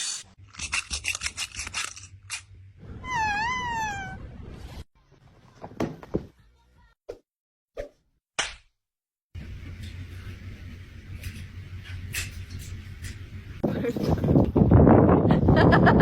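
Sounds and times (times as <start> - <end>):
cat meowing: 3.0 - 4.3.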